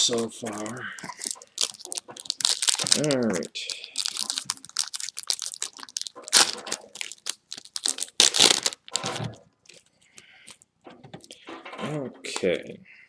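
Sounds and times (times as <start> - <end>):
plastic wrapper crinkling and tearing: 0.0 - 9.4
trading cards handled: 0.1 - 9.3.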